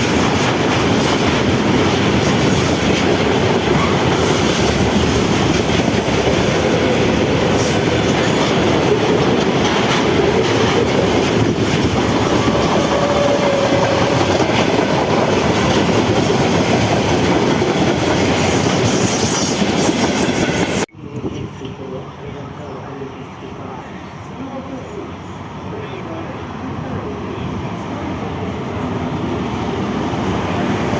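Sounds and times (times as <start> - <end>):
clickety-clack over rail joints: 0.0 - 20.8
train wheels rushing on rail: 0.0 - 30.9.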